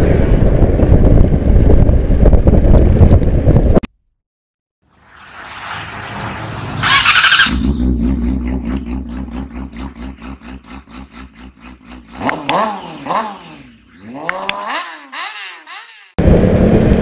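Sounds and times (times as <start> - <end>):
motorcycle engine revving: 4.9 - 17.0
motorcycle engine running: 6.3 - 17.0.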